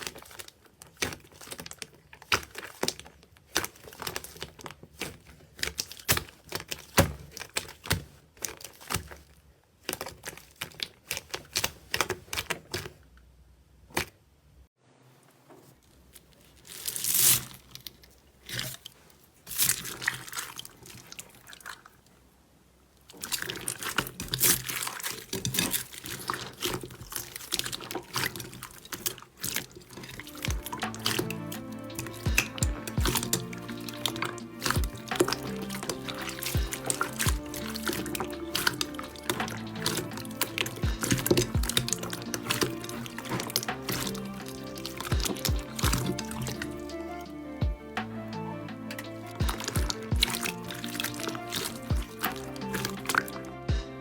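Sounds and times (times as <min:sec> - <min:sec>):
slime squeezed by hand: 0:23.2 - 0:47.3, 0:48.9 - 0:53.6.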